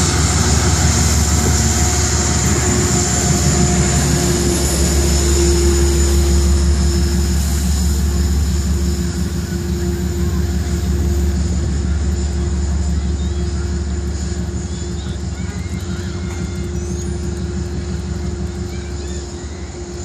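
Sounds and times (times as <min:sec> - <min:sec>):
train diesel engine rumble: 0:00.0 - 0:20.0.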